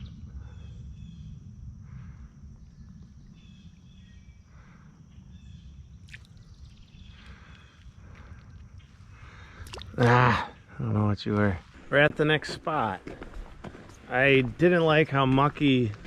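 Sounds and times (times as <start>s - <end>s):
faint high bird chirps: 0.0s - 1.4s, 2.6s - 9.0s
low rumble: 0.0s - 9.6s.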